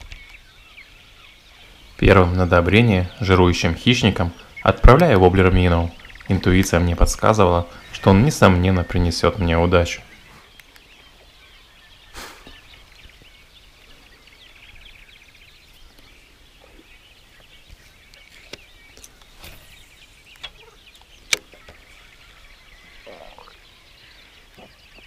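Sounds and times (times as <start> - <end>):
birds chirping and trilling: 0.0 - 25.0
sharp clicks: 20.3 - 21.5.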